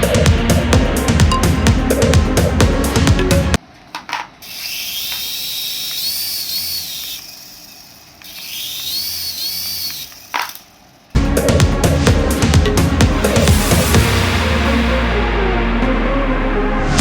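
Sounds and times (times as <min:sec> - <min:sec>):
toy electric motor whirring: 0:04.1 - 0:11.2.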